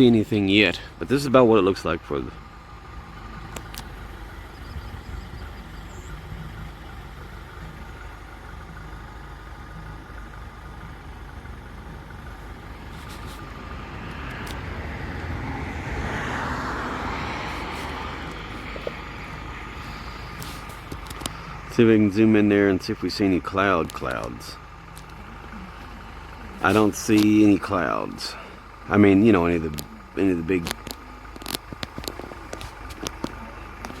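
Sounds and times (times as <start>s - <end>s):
road traffic rumble: 0.0s - 34.0s
vehicle passing: 11.1s - 34.0s.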